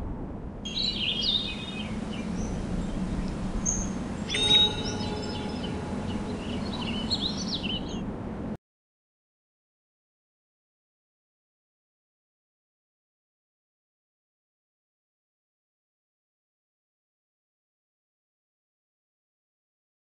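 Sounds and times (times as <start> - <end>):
low outdoor background noise: 0.0 - 8.6
small birds chirping and singing: 0.7 - 8.0
loud bird call: 3.6 - 8.0.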